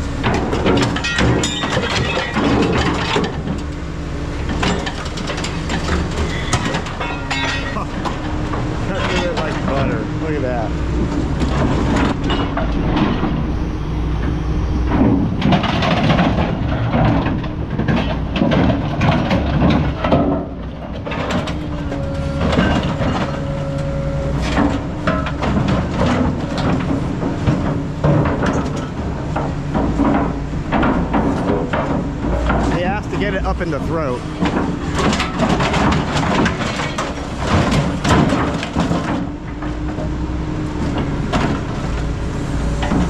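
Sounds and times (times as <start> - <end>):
diesel machine running: 0.0 - 43.0
metal clanks and scraping: 0.2 - 3.7, 4.4 - 40.1
metal squealing: 5.2 - 18.2, 21.2 - 25.4.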